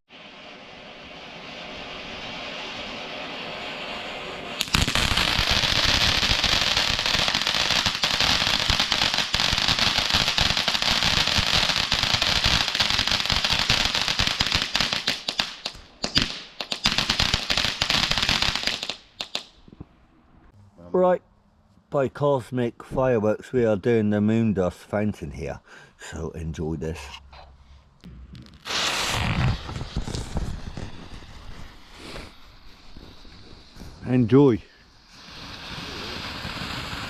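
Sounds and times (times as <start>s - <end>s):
firework rapid bangs and crackles: 0.1s - 19.5s, 28.4s - 37.0s
firework fuse hiss: 0.1s - 19.6s, 28.3s - 37.0s.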